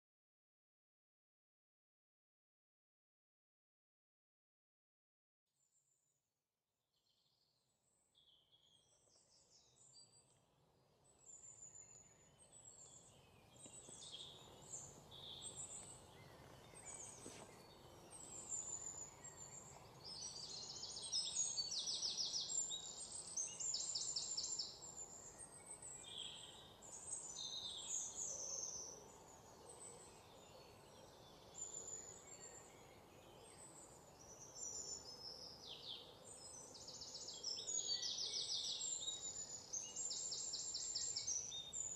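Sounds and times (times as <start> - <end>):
faint background hiss: 8.6 - 41.9
birds chirping and singing: 11.2 - 41.9.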